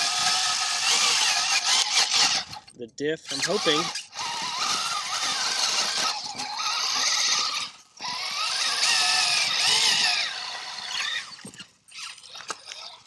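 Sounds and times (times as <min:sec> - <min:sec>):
toy car drivetrain whining: 0:00.0 - 0:13.0.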